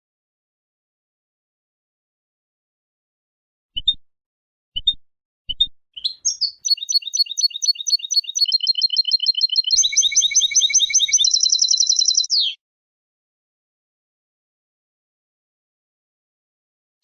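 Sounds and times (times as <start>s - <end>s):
goldfinch singing: 6.0s - 12.6s.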